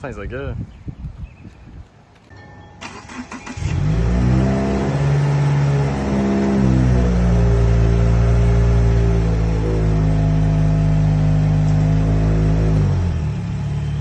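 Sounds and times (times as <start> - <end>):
car engine starting and idling: 2.8 - 14.0.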